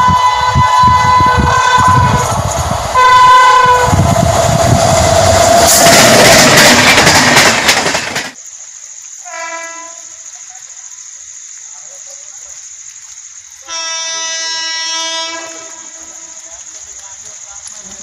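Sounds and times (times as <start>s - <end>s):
train horn blasts: 0.0s - 2.3s, 2.9s - 4.0s, 9.2s - 10.1s, 13.7s - 16.4s
distant train horn: 0.0s - 4.1s, 9.2s - 10.1s, 13.7s - 16.5s
train passing with rail clatter: 0.0s - 10.9s, 13.6s - 18.0s.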